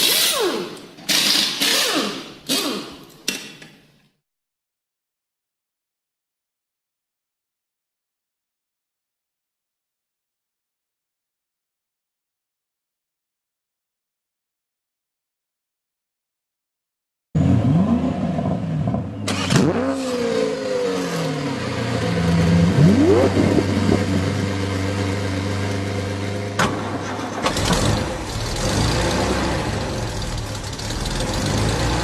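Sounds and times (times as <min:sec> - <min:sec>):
car engine revving: 0:17.4 - 0:32.0.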